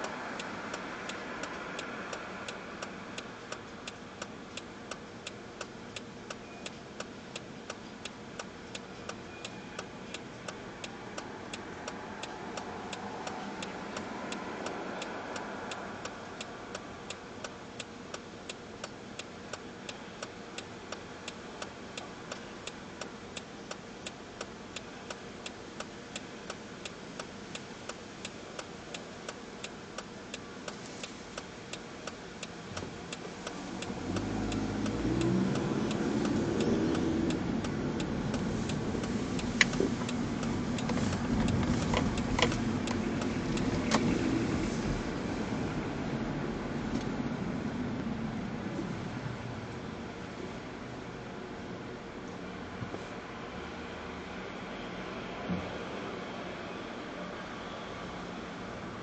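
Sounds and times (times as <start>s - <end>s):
sharp ticking: 0.0s - 30.8s, 31.4s - 44.4s
distant traffic hum: 0.0s - 59.0s.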